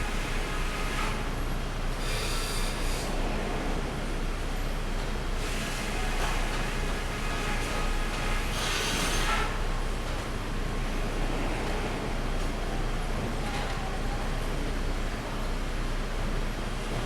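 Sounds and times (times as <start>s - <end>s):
thin machine squeal: 2.0s - 3.2s, 7.3s - 9.6s.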